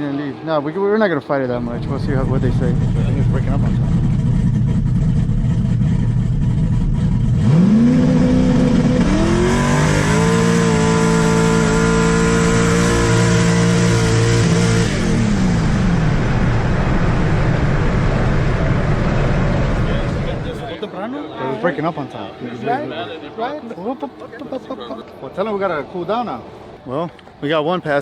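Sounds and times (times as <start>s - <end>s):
rushing air and exhaust: 1.5s - 20.8s
car engine revving: 1.6s - 20.8s.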